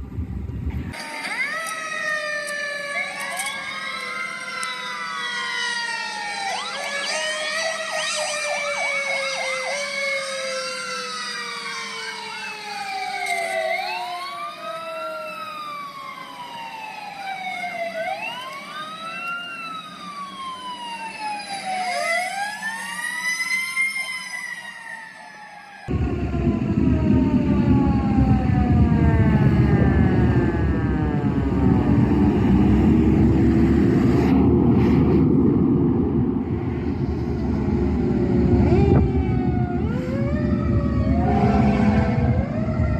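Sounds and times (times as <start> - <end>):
fire truck sirens wailing: 0.1 - 42.9
siren rapid yelp: 0.9 - 34.4, 35.4 - 42.9
long falling tone: 25.9 - 42.9.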